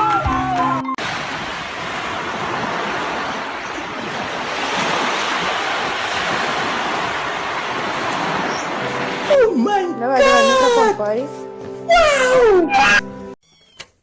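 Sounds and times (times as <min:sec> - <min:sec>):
steady rushing noise: 0:01.0 - 0:09.2.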